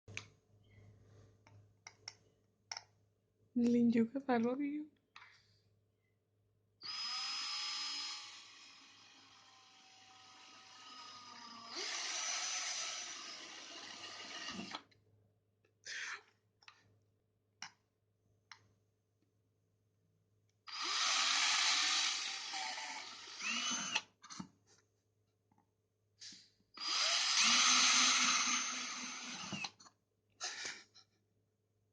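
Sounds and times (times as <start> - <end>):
small electric drill whirring: 6.8 - 14.8, 20.7 - 24.1, 26.8 - 29.8.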